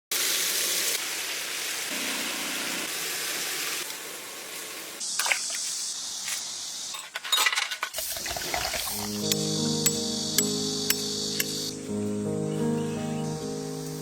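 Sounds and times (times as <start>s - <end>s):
steady rushing hiss: 0.4s - 6.9s, 8.0s - 11.9s.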